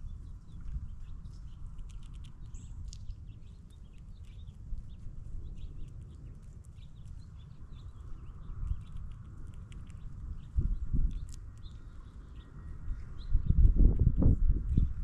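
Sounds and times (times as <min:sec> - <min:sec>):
faint bird chirps: 0:00.0 - 0:13.7
steady low rumble: 0:00.0 - 0:15.0
squirrels handling peanuts: 0:00.6 - 0:12.3.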